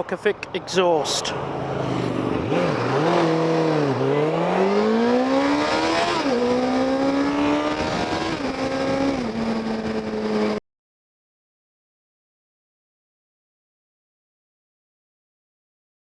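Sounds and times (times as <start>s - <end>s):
motorcycle engine revving: 1.4s - 10.6s.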